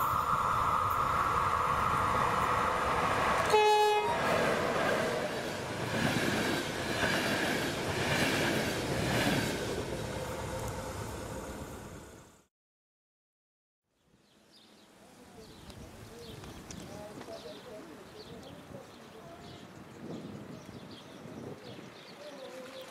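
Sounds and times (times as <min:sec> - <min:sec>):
train horn blast: 0:03.4 - 0:04.4.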